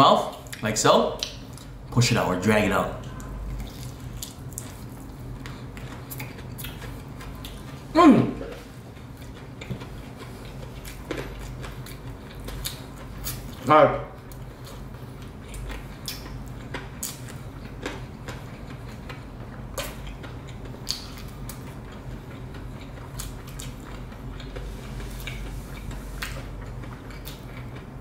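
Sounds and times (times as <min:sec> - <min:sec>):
steady low hum: 0:00.0 - 0:28.0
chewing clicks and smacks: 0:03.0 - 0:07.8, 0:14.3 - 0:24.6, 0:25.2 - 0:28.0.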